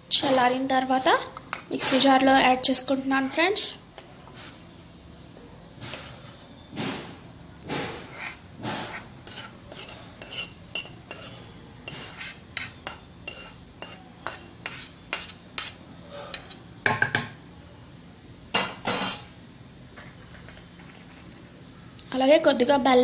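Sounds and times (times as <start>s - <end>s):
spoon clinking against metal pan: 9.3s - 11.5s, 12.6s - 17.3s.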